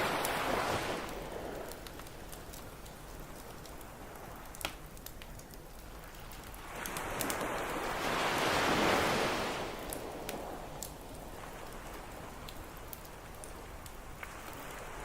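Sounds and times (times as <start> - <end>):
ocean wave washing: 0.0 - 2.6, 6.3 - 12.9
campfire crackling and popping: 0.0 - 15.0.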